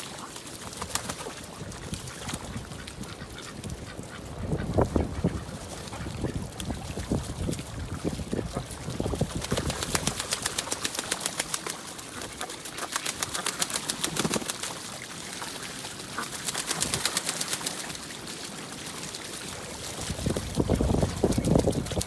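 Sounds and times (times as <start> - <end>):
wings flapping: 0.3 - 2.7, 8.7 - 18.1, 20.0 - 22.0.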